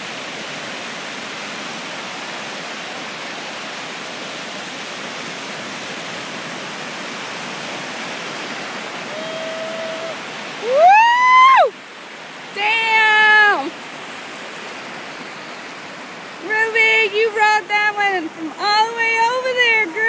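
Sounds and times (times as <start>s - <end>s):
ocean surf rushing: 0.0s - 20.0s
loud high cry: 9.0s - 11.8s, 12.6s - 13.7s.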